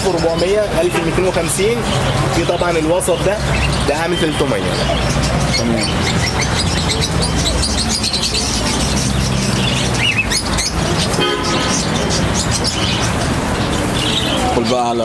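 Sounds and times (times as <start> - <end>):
small birds chirping: 0.0 - 15.0
street traffic rumble: 0.0 - 15.0.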